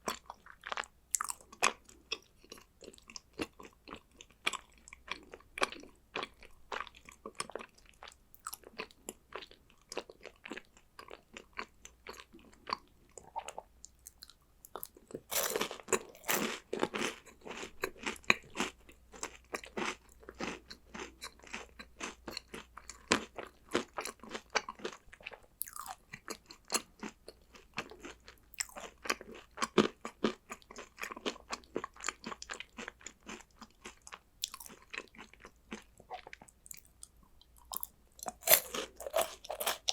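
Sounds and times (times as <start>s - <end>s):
person crunching snacks: 14.1s - 18.7s, 25.6s - 26.0s, 31.2s - 36.9s, 37.6s - 39.9s.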